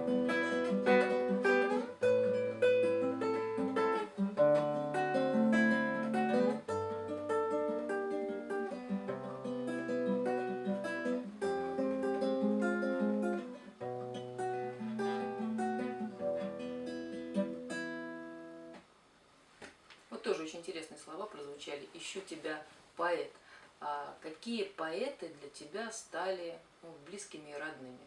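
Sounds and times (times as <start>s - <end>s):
fingerpicked acoustic guitar: 0.0s - 18.8s.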